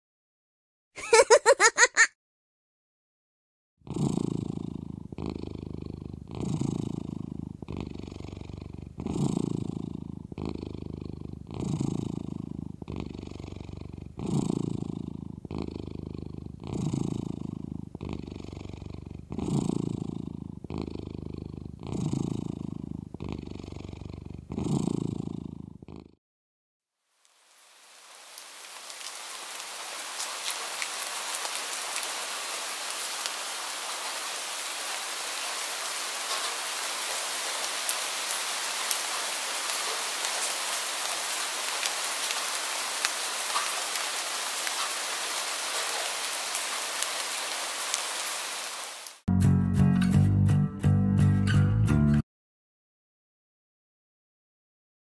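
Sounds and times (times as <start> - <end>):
person giggling: 1.0 - 2.1
cat purring: 3.8 - 26.2.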